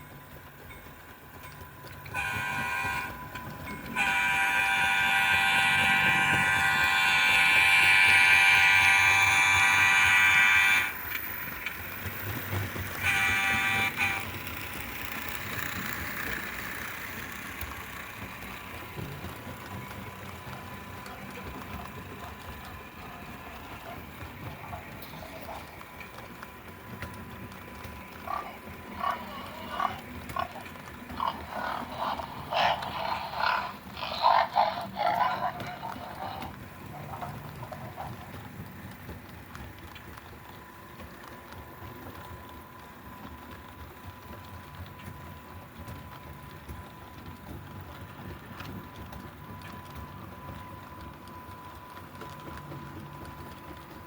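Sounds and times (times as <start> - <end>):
faint steady running noise: 0.0 - 54.0
model train horn: 2.1 - 11.2, 13.0 - 14.5.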